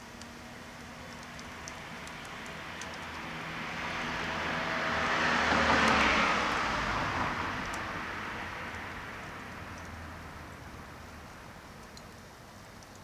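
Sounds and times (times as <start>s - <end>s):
motor vehicle passing by: 2.6s - 10.9s.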